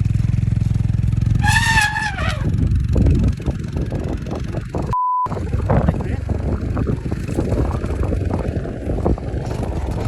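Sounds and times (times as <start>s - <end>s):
censor bleep: 4.9s - 5.3s.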